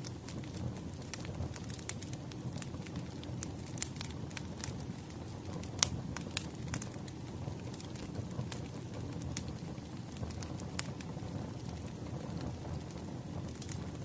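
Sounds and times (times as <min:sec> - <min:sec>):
fire low rumble: 0:00.0 - 0:14.0
wood fire pops and snaps: 0:00.0 - 0:14.0.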